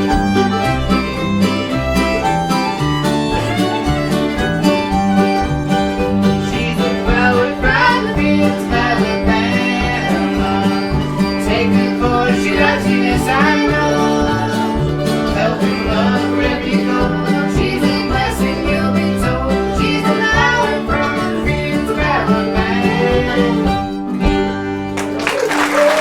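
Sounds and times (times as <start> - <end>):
banjo picking: 0.0 - 25.2
guitar picking: 0.0 - 25.2
bass line: 0.0 - 25.4.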